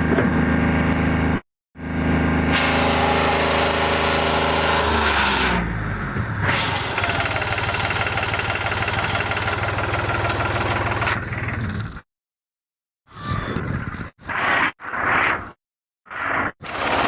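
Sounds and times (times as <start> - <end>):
tractor diesel engine running: 6.6 - 11.2, 16.7 - 17.0.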